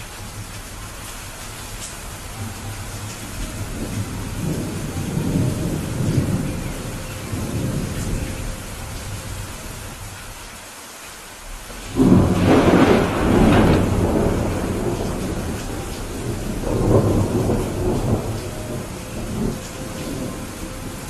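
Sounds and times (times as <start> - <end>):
thunder rumbling: 0.0 - 10.4, 11.5 - 21.0
rain falling: 0.0 - 21.0.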